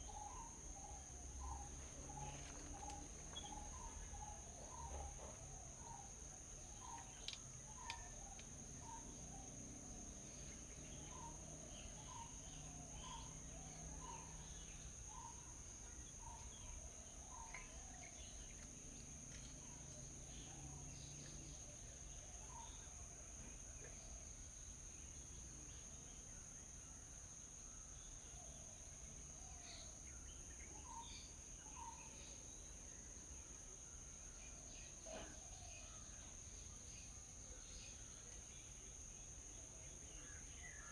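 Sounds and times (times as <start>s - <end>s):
bird chirps: 0.0s - 23.0s, 29.4s - 33.0s
high insect drone: 0.0s - 40.9s.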